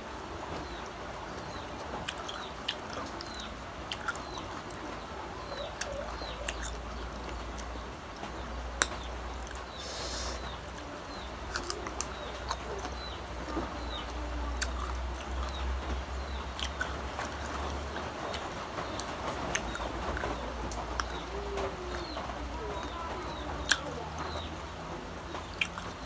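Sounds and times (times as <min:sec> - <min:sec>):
chewing crunchy fruit: 0:00.6 - 0:26.0
wet mouth clicks: 0:02.0 - 0:04.5, 0:08.8 - 0:10.9, 0:11.5 - 0:13.1, 0:14.6 - 0:17.6, 0:25.5 - 0:26.0.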